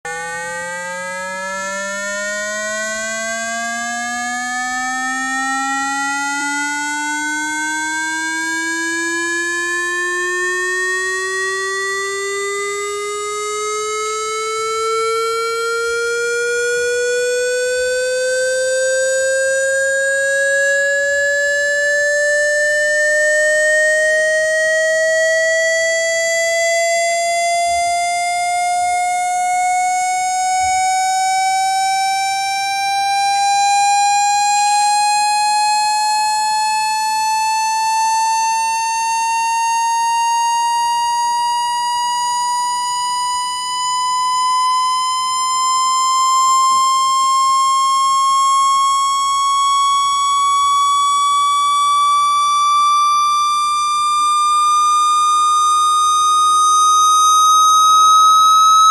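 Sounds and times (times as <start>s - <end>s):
buzzy electronic tone rising: 55.6s - 58.9s.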